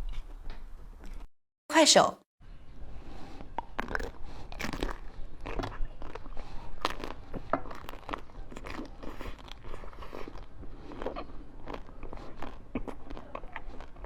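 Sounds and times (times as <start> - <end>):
ice being chewed: 3.4 - 14.0.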